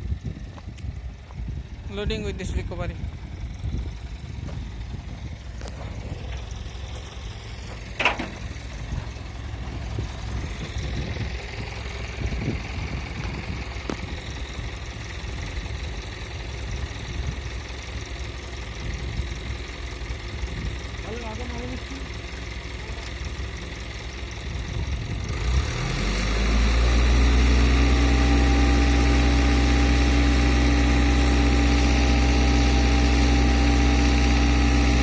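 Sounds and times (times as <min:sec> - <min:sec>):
diesel truck engine idling: 0:00.0 - 0:35.0
high steady whine: 0:05.0 - 0:11.2
sharp metal clank: 0:08.0 - 0:08.4.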